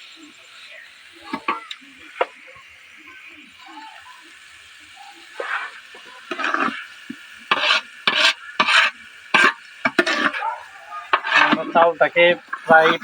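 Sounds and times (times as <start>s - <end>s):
rice sizzling in oil: 0.0s - 13.0s
spatula scraping pot: 5.2s - 13.0s.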